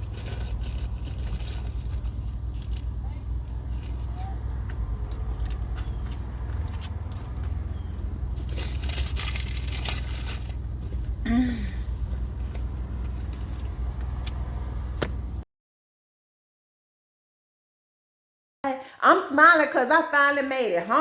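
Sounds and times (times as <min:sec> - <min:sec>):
car engine and road rumble: 0:00.0 - 0:15.4
louder road noise rush: 0:00.0 - 0:15.4.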